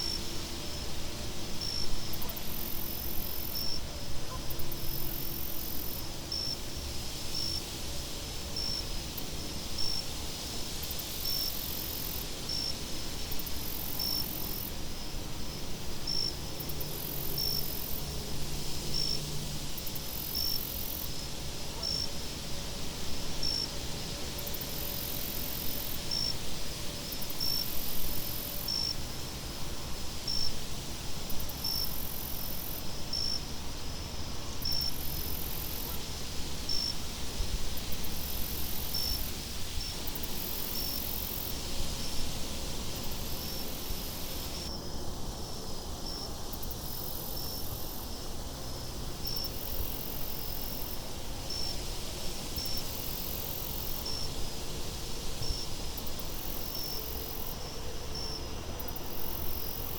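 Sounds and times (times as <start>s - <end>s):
crickets chirping: 0.0s - 59.9s
high insect trill pulsing: 43.0s - 51.9s, 55.4s - 59.9s.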